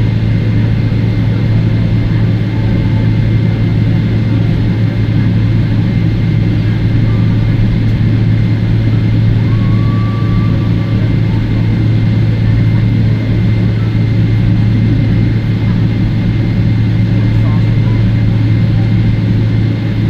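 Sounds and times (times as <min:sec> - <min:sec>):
aircraft cabin drone: 0:00.0 - 0:20.0.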